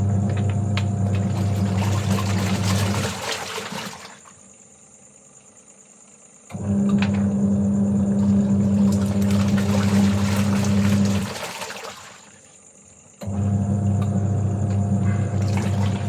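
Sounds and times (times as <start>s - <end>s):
high-pitched insect chorus: 4.3s - 6.5s
water rushing and splashing: 8.2s - 12.4s.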